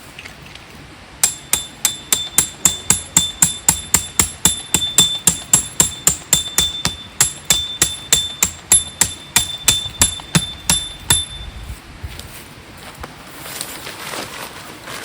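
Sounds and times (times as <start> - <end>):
hammer blows on metal: 1.2 - 11.7.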